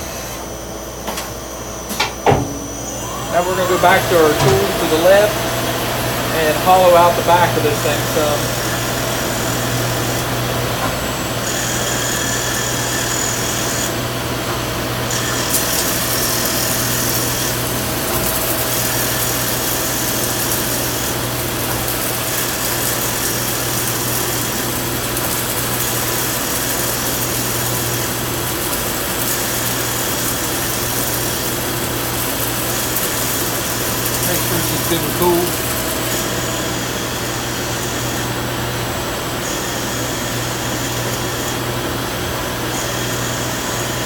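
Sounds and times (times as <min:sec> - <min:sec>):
lathe humming: 0:02.6 - 0:44.0
cutting tool hissing on metal: 0:03.0 - 0:10.4, 0:11.2 - 0:14.1, 0:14.7 - 0:38.4.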